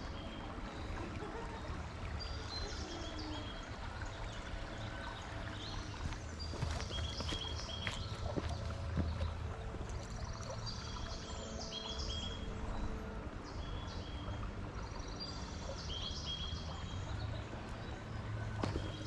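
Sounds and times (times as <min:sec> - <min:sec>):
small birds chirping: 0:02.2 - 0:12.6.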